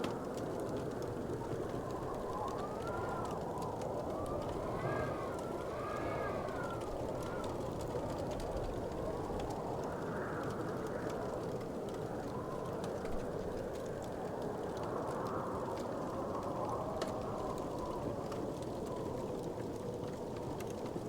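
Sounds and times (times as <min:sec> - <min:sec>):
fireplace fire crackling: 0:00.0 - 0:21.0.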